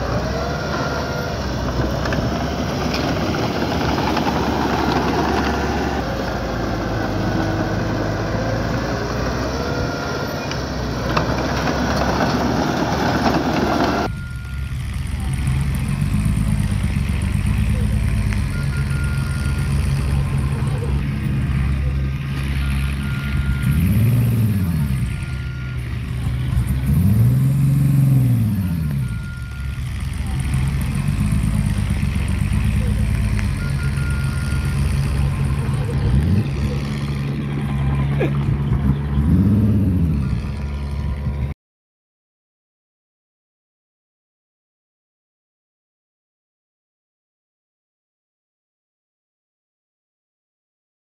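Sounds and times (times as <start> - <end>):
diesel engine revving: 0.0 - 41.6.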